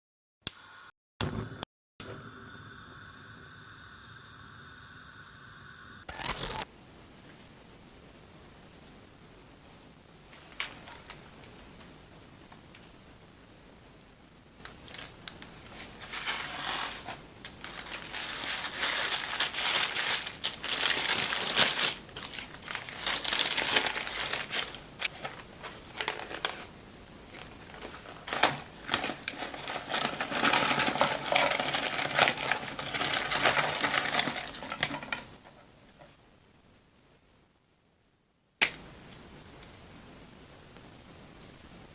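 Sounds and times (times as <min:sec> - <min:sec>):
paper wrapping crinkling and tearing: 0:10.3 - 0:11.3, 0:14.6 - 0:26.7, 0:27.3 - 0:35.4.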